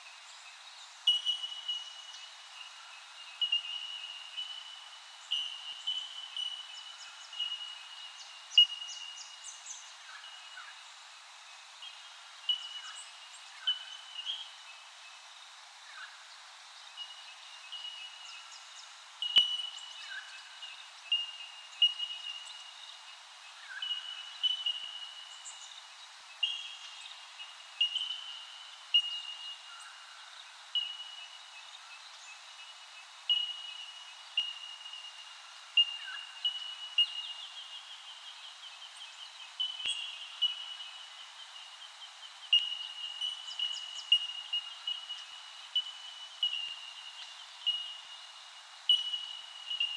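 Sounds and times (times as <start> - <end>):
faint bird chirps: 0.0 - 15.2, 15.8 - 49.9.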